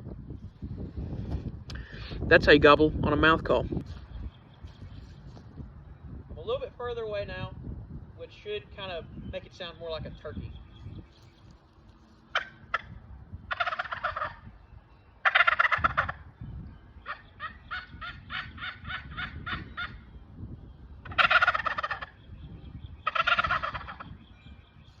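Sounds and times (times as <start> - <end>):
turkey call gobbles: 12.3 - 14.5, 15.2 - 16.3, 17.0 - 20.1, 21.0 - 22.3, 23.0 - 24.2
short turkey call notes: 13.5 - 14.4, 15.2 - 16.2, 21.0 - 22.2, 23.0 - 24.0.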